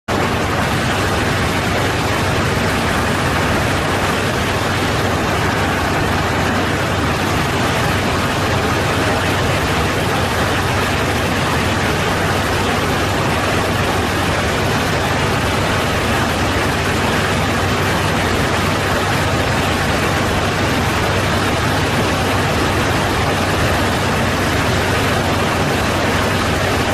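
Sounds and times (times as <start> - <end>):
airliner cockpit airflow and engine: 0.1 - 26.9.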